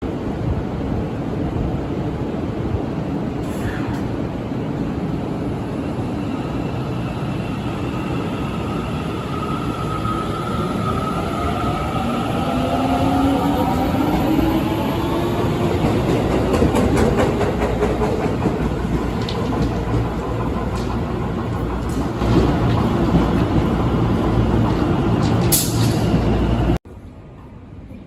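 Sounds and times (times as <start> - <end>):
wheels clicking over rail joints: 15.6 - 26.2.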